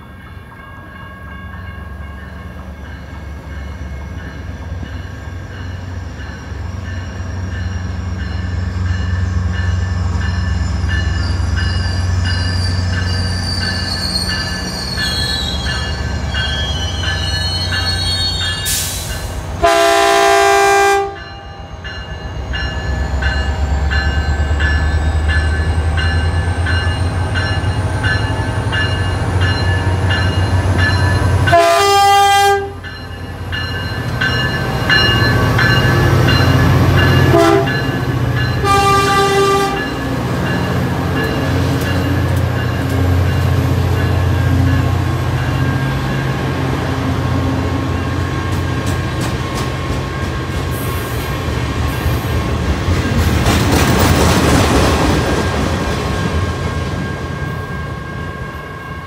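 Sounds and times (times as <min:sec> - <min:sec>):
high wavering train squeal: 0:00.0 - 0:19.6, 0:21.2 - 0:31.6, 0:32.8 - 0:59.0
train air horn blasts: 0:18.7 - 0:21.3, 0:31.5 - 0:32.8, 0:37.3 - 0:37.9, 0:38.6 - 0:40.0.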